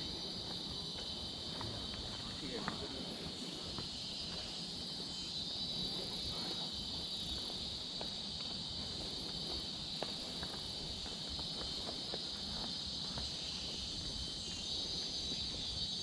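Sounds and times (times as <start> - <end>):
insect chorus drone: 0.0 - 16.0.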